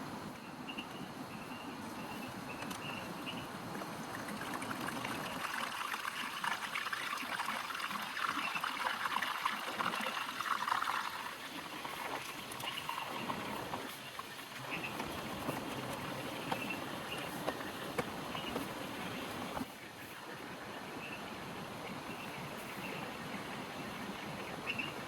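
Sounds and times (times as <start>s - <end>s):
rainwater trickling and splashing: 4.0s - 19.6s.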